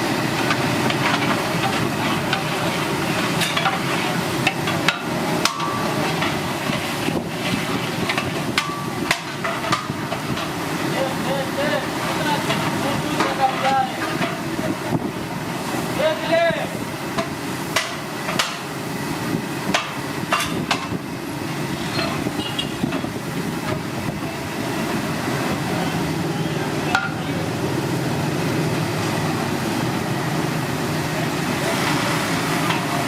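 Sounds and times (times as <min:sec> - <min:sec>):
steady background din: 0:19.6 - 0:31.7.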